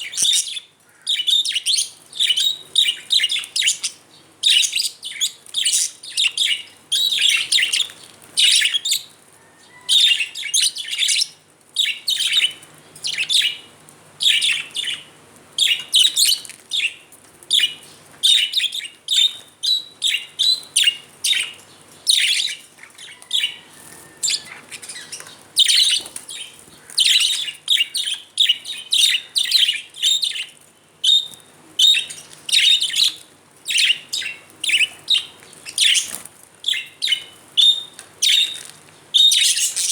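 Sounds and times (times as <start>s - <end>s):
budgerigars chirping: 0.1s - 9.0s, 22.1s - 38.6s, 39.2s - 39.9s.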